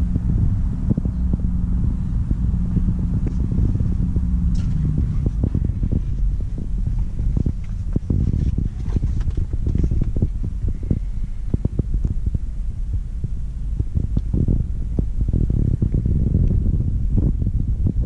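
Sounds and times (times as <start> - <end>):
car engine idling: 0.0 - 18.0
light knocks and bumps: 4.4 - 12.2.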